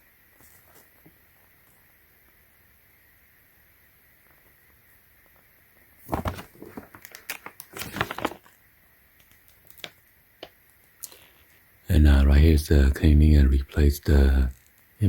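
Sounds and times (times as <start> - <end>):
paper pages rustling: 6.0 - 10.0.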